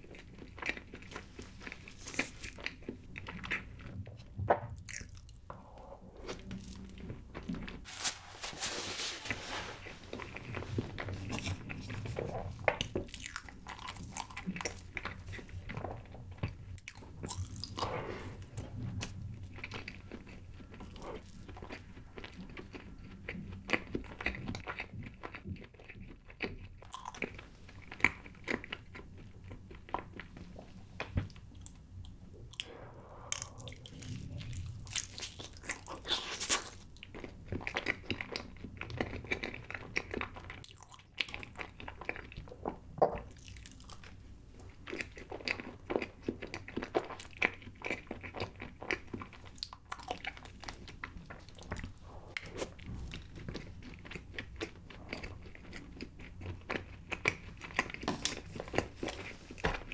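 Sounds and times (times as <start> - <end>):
chewing cake: 0.0 - 7.9, 9.8 - 59.9.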